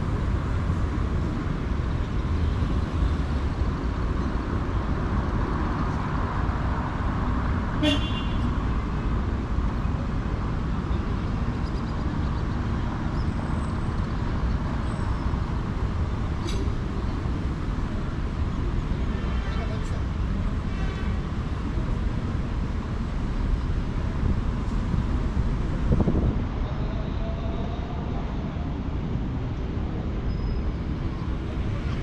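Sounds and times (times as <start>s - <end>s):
street traffic rumble: 0.0s - 32.0s.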